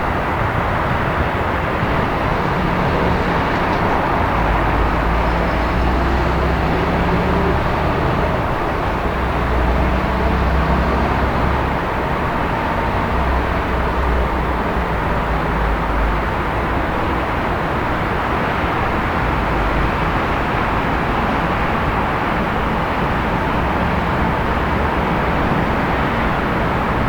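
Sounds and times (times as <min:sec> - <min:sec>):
low engine drone: 0:00.0 - 0:14.6
rush of traffic: 0:00.0 - 0:27.0.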